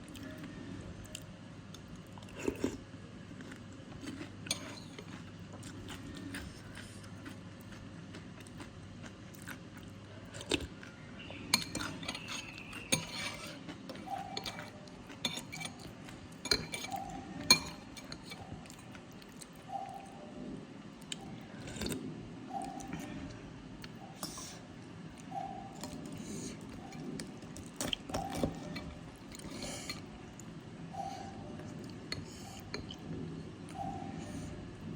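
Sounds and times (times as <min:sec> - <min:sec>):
spoon clinking against bowl: 0:11.5 - 0:13.5, 0:16.4 - 0:18.4.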